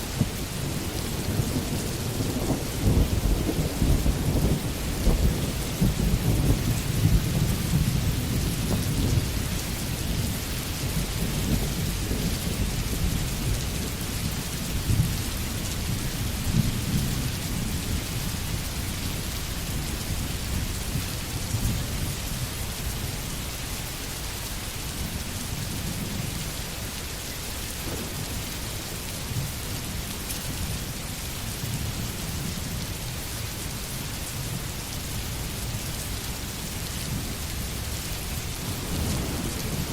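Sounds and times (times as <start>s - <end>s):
thunder rumbling: 0.0s - 18.9s, 27.6s - 30.9s, 37.1s - 39.9s
rain hissing: 0.0s - 39.9s.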